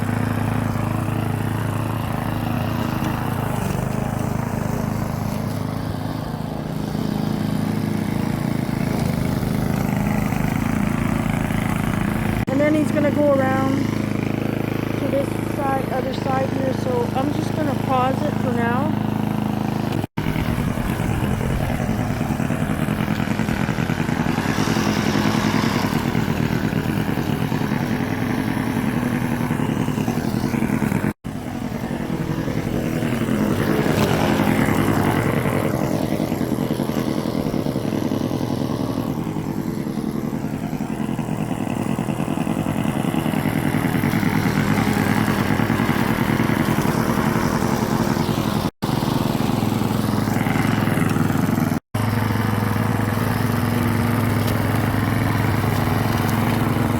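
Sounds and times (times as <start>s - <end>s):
lawn mower cutting grass: 0.0s - 56.9s.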